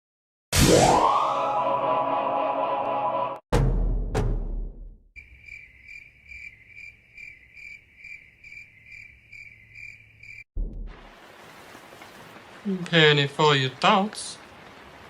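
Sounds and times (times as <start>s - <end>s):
cricket chirping: 5.2s - 10.5s.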